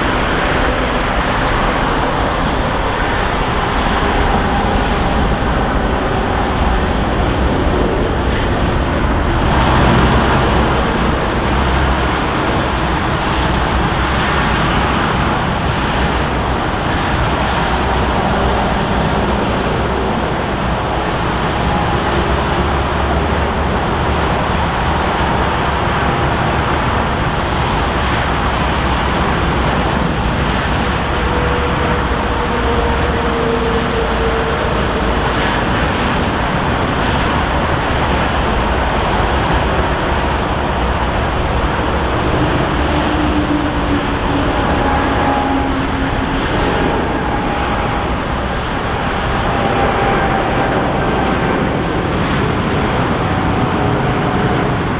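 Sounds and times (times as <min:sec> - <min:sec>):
jet engine noise: 0:00.0 - 0:54.9.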